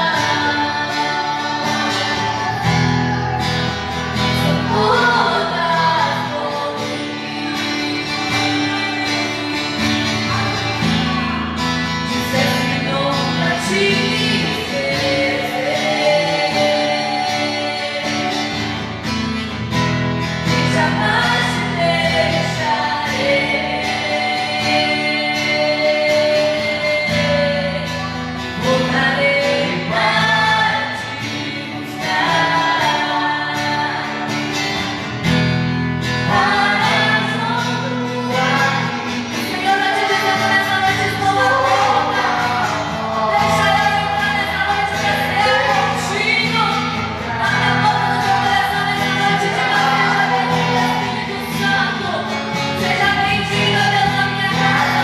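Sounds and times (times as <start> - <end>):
person singing: 0.0 - 19.7, 20.4 - 35.0, 36.1 - 55.0
guitar accompaniment: 0.0 - 55.0.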